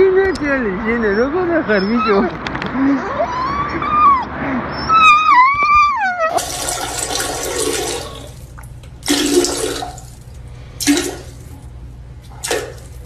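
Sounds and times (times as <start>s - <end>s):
dog whining: 1.7s - 7.0s.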